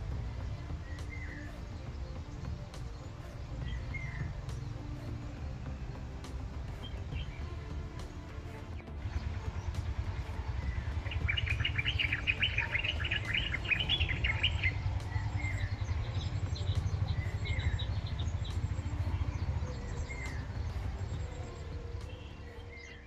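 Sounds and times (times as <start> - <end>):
small birds chirping: 0.0 - 23.0
steady low rumble: 0.0 - 23.0.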